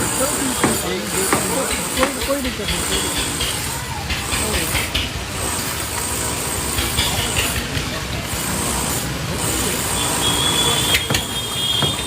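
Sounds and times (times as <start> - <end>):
vehicle and machinery noise: 0.0 - 12.0
sharp knock: 0.6 - 2.3, 11.0 - 12.0.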